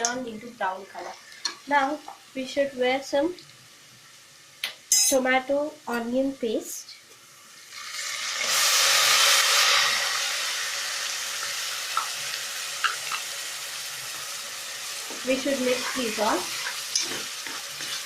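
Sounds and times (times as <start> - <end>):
paste sizzling in hot oil: 7.4 - 18.0.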